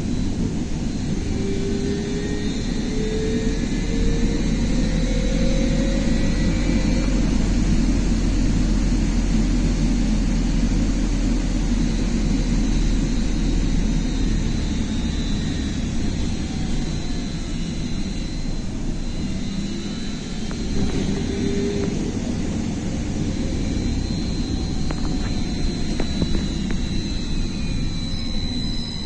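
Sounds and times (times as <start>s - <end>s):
trolleybus rumble and road noise: 0.0s - 29.0s
thin high whine: 12.2s - 29.0s.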